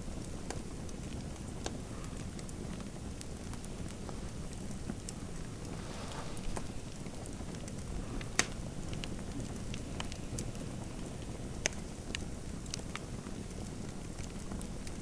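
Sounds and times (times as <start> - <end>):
low rush of fire: 0.0 - 15.0
fireplace snapping and popping: 0.2 - 15.0.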